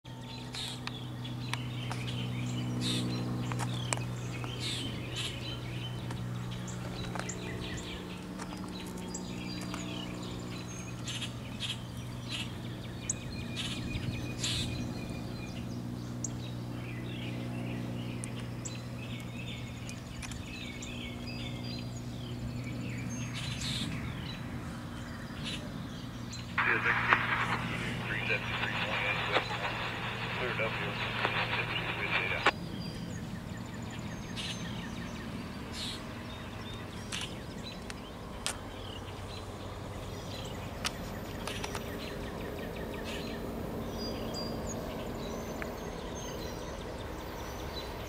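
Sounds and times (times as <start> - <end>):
steady low hum: 0.1 - 48.0
birds chirping and singing: 0.2 - 48.0.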